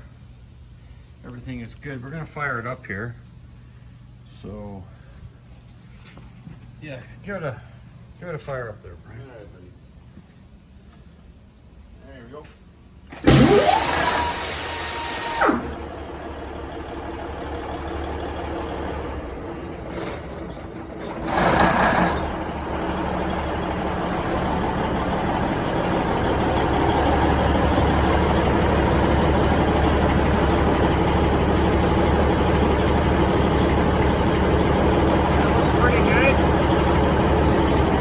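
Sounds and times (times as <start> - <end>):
starter whine: 13.0 - 38.0
diesel engine running: 13.1 - 38.0
loud burst of engine noise: 13.1 - 38.0.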